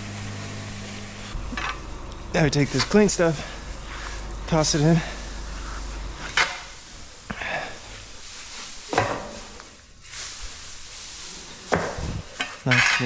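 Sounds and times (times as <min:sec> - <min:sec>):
bedding rustling swishes: 0:02.7 - 0:12.7.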